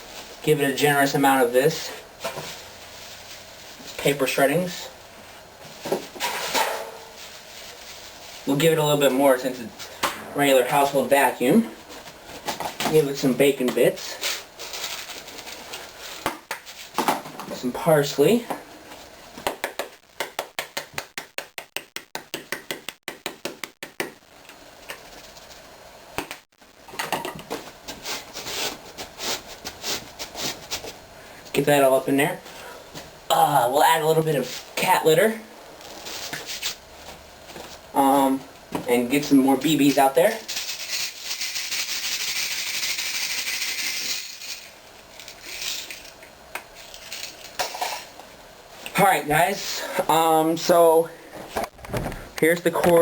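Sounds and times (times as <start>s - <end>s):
container of dried herbs rattling: 40.4s - 46.1s.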